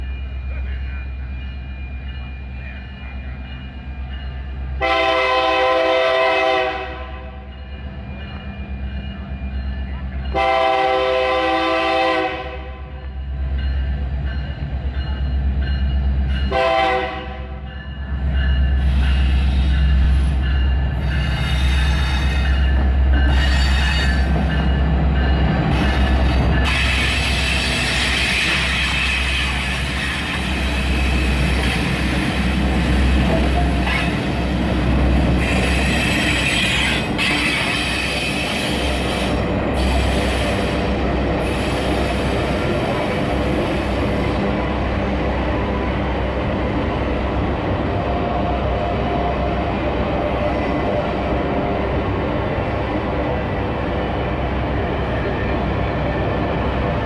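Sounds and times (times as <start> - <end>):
locomotive rumble: 0.0 - 57.0
locomotive horn blasts: 4.8 - 7.3, 10.4 - 12.8, 16.5 - 17.6.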